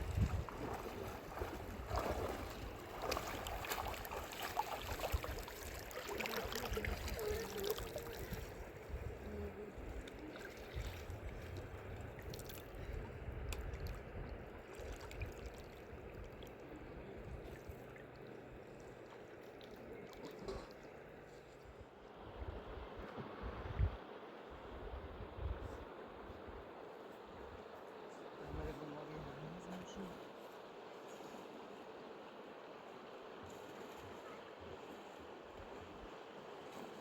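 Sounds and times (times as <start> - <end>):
river water rushing: 0.0 - 8.2.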